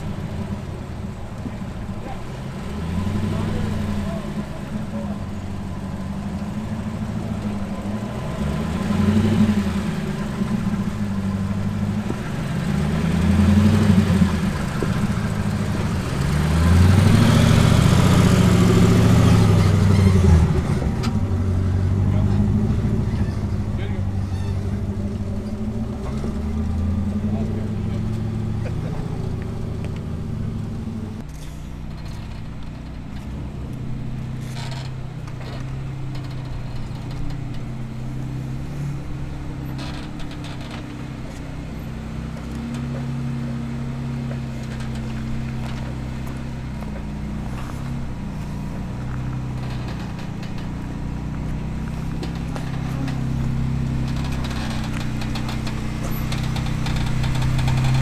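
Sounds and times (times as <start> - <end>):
engine running at low revs: 0.0 - 58.0
short knocks: 39.0 - 58.0.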